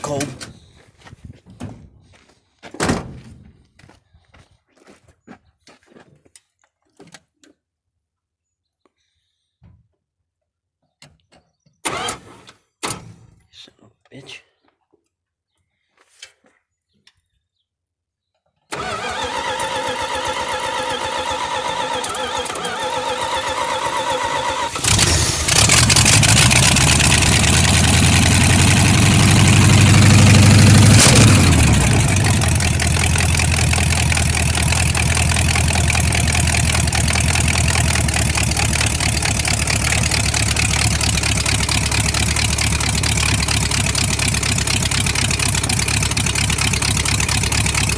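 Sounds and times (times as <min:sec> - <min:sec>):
car engine running and idling: 0:00.0 - 0:00.4, 0:18.7 - 0:47.9
starter motor cranking: 0:18.7 - 0:47.9.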